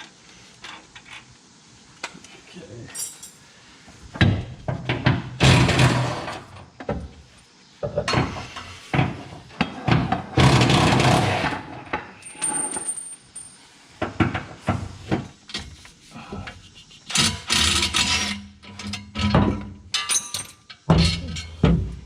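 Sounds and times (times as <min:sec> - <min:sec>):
tools clanking and knocking: 0:04.2 - 0:07.1, 0:07.8 - 0:15.8, 0:17.0 - 0:22.0.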